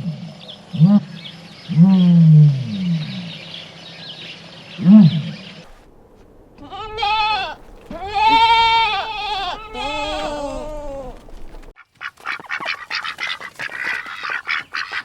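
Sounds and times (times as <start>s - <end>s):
large animal deep calls: 6.6s - 11.6s
quavering bleat: 6.6s - 11.6s.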